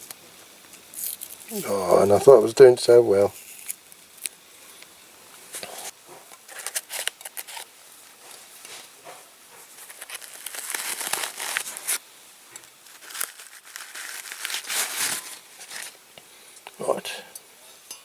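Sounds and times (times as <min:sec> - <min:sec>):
tape crinkling and tearing: 0:00.8 - 0:02.2, 0:03.3 - 0:04.4, 0:06.4 - 0:07.7, 0:09.7 - 0:16.0.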